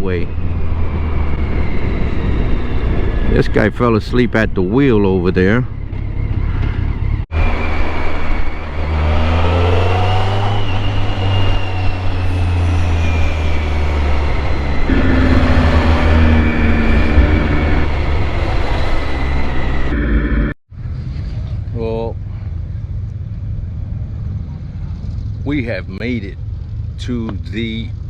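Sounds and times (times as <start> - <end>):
wind and road noise: 0.0 - 28.0
motorcycle engine running: 14.3 - 18.5.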